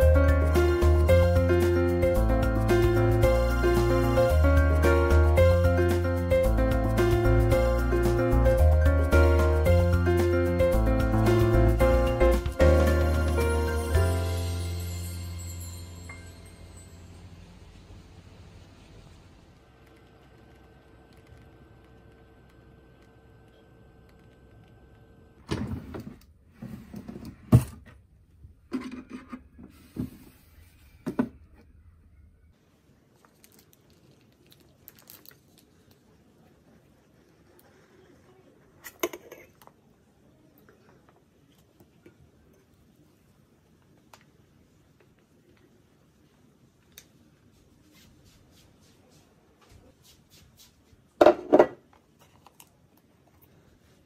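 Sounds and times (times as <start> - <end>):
freezer low hum: 15.9 - 39.3.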